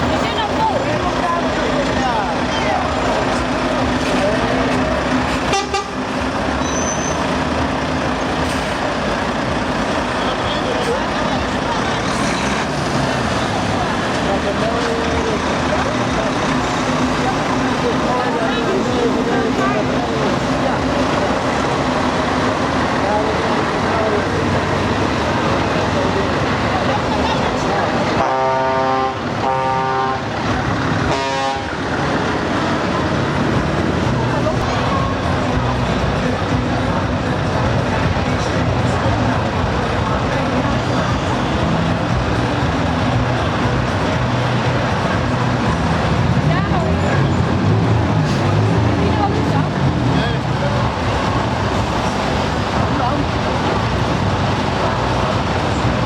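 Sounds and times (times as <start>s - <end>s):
traffic noise: 0.0s - 56.0s
trucks driving past: 0.0s - 56.0s
truck horn blast: 5.4s - 7.2s, 28.1s - 31.8s.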